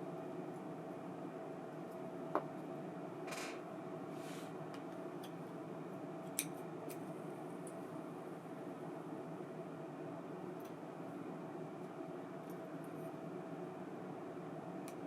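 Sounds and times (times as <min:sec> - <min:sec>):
faint hum: 0:00.0 - 0:15.0
light clicks of small parts: 0:04.7 - 0:05.4, 0:06.2 - 0:07.8, 0:10.6 - 0:10.8.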